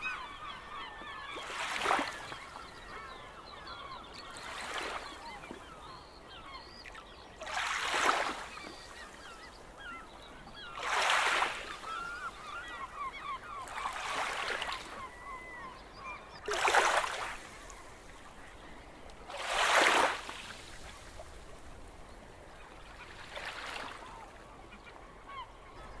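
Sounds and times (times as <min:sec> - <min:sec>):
waves washing in: 0:19.3 - 0:21.4.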